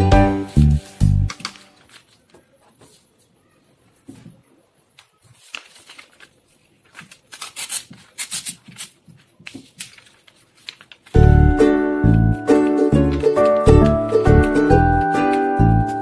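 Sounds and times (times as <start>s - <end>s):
paper rustling and crinkling: 1.0s - 3.4s, 5.0s - 11.2s.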